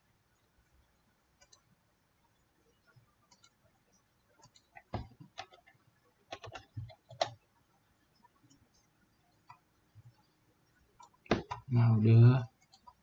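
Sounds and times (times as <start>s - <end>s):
computer mouse clicking: 1.4s - 1.7s, 3.2s - 3.6s, 4.4s - 7.4s.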